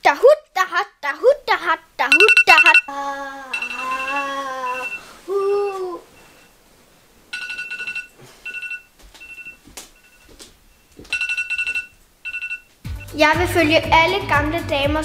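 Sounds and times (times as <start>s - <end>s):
electronic ringing beeps: 2.1s - 2.9s, 3.5s - 6.6s, 7.3s - 13.2s.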